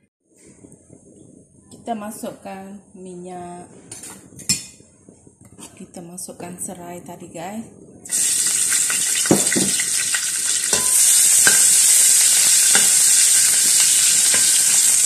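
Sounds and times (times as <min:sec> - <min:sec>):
metal spatula scraping a wok: 0:03.9 - 0:04.7, 0:09.8 - 0:15.0
lemongrass sizzling in hot oil: 0:08.0 - 0:15.0.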